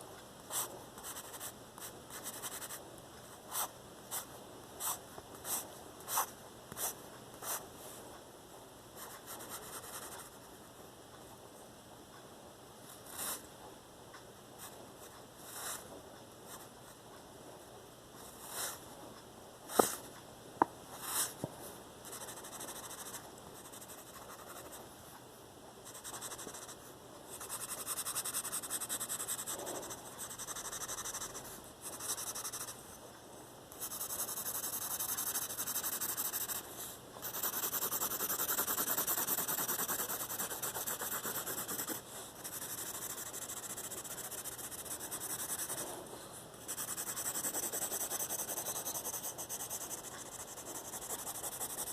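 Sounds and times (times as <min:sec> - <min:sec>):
pencil scratching on paper: 0:00.5 - 0:02.8, 0:03.5 - 0:07.6, 0:13.0 - 0:13.4, 0:22.0 - 0:24.8, 0:25.8 - 0:32.9, 0:33.7 - 0:51.9
pencil tapping: 0:19.7 - 0:20.0, 0:37.2 - 0:45.8.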